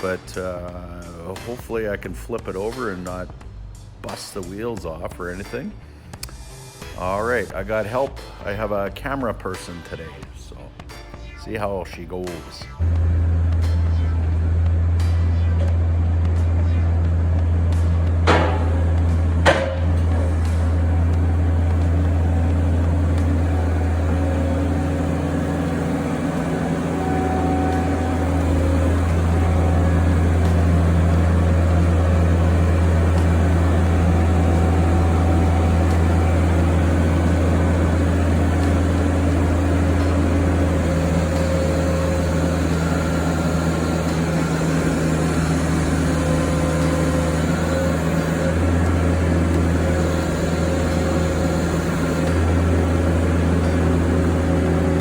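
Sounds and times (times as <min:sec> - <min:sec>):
low mechanical drone: 0:12.6 - 0:55.0
faint higher tones: 0:12.8 - 0:54.9.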